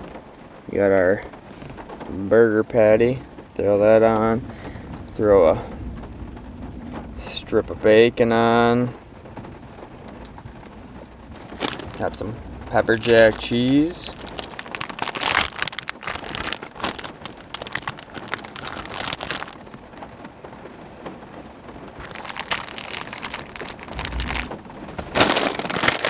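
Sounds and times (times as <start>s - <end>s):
rain pattering on truck: 0.0s - 26.0s
plastic packaging crinkling: 11.0s - 20.2s, 21.8s - 26.0s.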